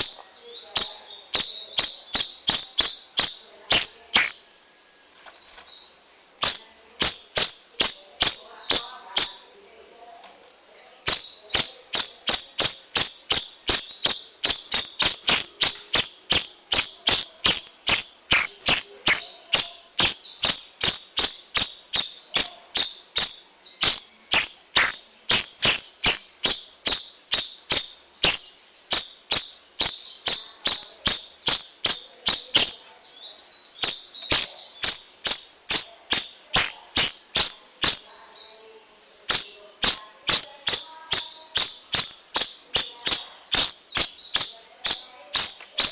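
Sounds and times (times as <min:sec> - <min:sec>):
bird high chipping notes: 0:00.0 - 0:09.8, 0:11.0 - 0:45.9.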